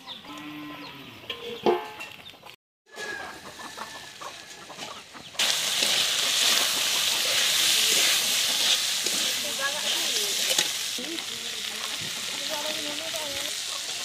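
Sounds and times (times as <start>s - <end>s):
hens clucking: 0.0s - 8.6s, 11.0s - 14.0s
food frying sizzle: 5.4s - 14.0s
metal spoon stirring: 5.7s - 10.9s.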